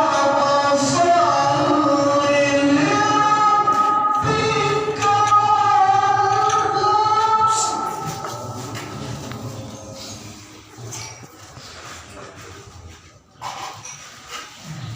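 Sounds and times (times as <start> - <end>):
man chanting over loudspeaker: 0.0 - 10.7.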